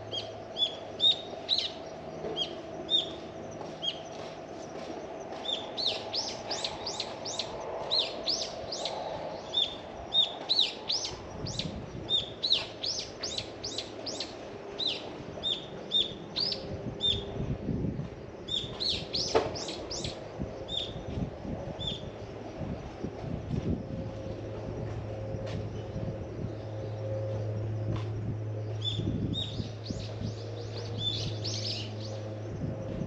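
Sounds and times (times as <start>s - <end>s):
small birds chirping: 0.0s - 17.4s, 18.0s - 21.1s, 21.7s - 22.2s, 28.6s - 32.3s.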